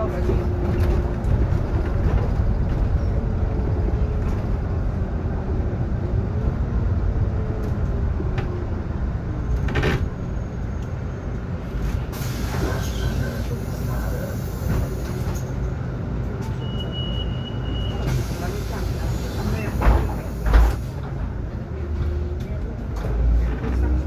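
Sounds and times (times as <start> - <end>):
bus running rumble: 0.0 - 24.0
hiss: 12.1 - 15.2.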